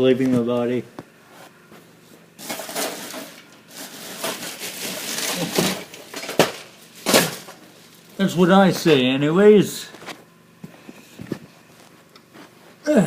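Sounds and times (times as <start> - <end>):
printer parts rustling and scraping: 2.4 - 9.0.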